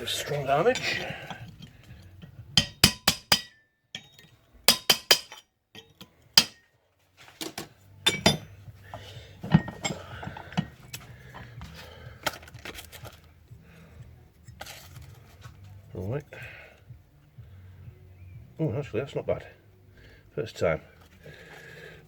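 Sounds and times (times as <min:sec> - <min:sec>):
handling of metal: 0:00.0 - 0:13.3
hammer striking sheet steel: 0:02.6 - 0:05.4, 0:06.4 - 0:06.6.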